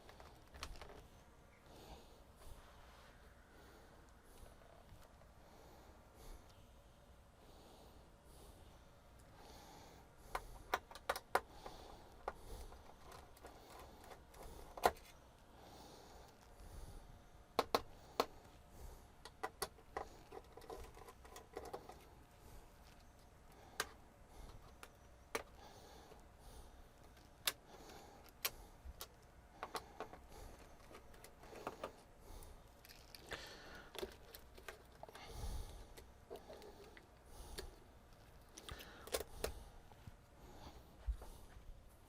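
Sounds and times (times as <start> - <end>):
soft rustling: 2.3 - 3.8.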